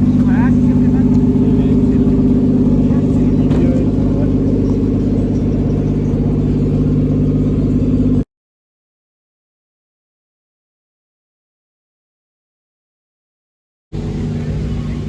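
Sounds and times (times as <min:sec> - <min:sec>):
car engine running: 0:00.0 - 0:08.2, 0:13.9 - 0:15.0.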